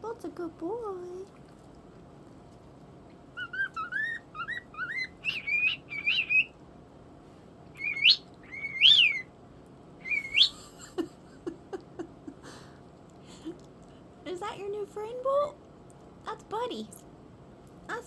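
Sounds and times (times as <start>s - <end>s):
bird whistling: 3.4s - 6.5s, 7.8s - 9.3s, 10.0s - 10.6s.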